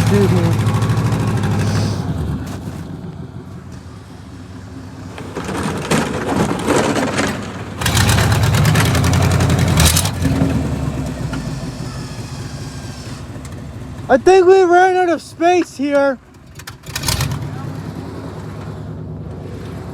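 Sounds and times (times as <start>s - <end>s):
vehicle engine revving: 0.0s - 19.9s
rushing scraping noise: 1.4s - 3.0s, 5.0s - 13.5s.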